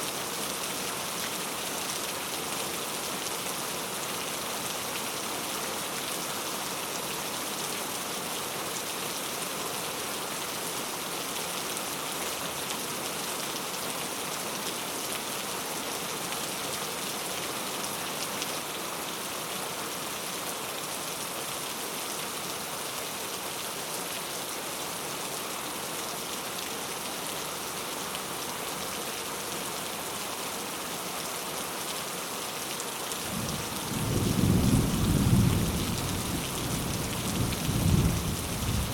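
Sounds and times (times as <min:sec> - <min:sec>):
rain falling: 0:00.0 - 0:38.9
low rumble of thunder: 0:33.3 - 0:38.9.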